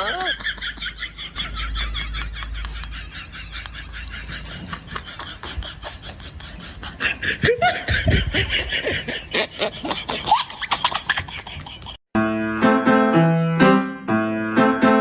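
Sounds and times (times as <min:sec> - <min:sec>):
person laughing: 0:00.0 - 0:12.0.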